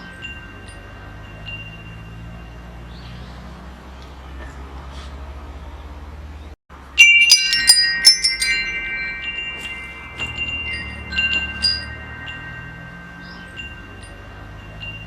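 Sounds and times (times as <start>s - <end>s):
metal wind chimes ringing: 0.0s - 3.8s, 6.8s - 15.0s.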